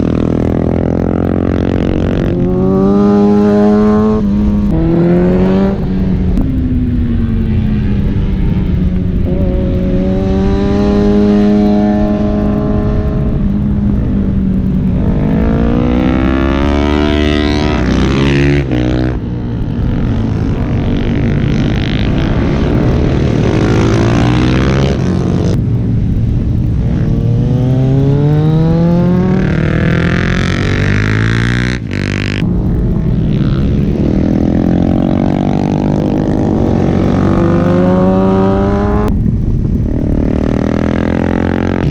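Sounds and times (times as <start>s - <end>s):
superbike engines revving: 0.0s - 25.6s, 26.7s - 41.9s.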